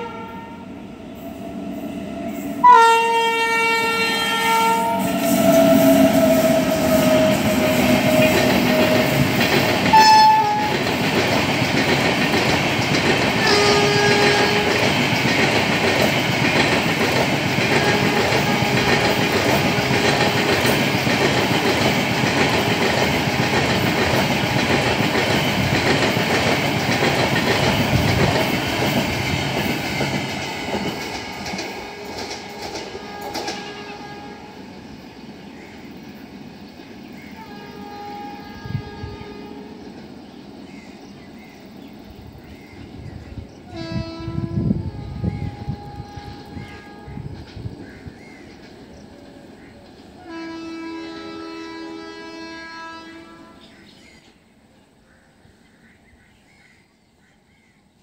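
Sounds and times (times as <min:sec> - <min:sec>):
locomotive horn: 0:00.0 - 0:10.9, 0:13.4 - 0:14.8, 0:17.7 - 0:20.4, 0:31.3 - 0:34.7, 0:37.4 - 0:39.8, 0:43.7 - 0:47.4, 0:50.2 - 0:53.7
train coaches rumbling and clattering: 0:00.0 - 0:51.7.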